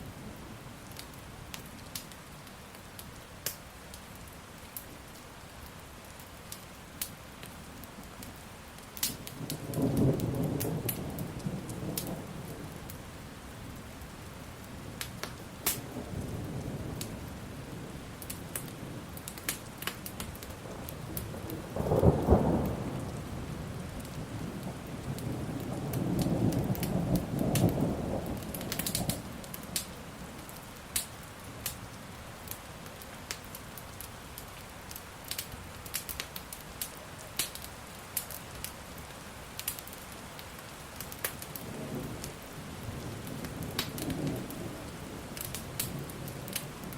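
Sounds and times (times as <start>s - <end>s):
steady rain: 0.0s - 46.9s
wood fire crackling and popping: 0.8s - 12.2s, 15.0s - 17.2s, 18.2s - 23.3s, 23.9s - 46.9s
thunder clap and rumble: 9.3s - 12.8s, 20.5s - 30.0s, 41.6s - 46.9s.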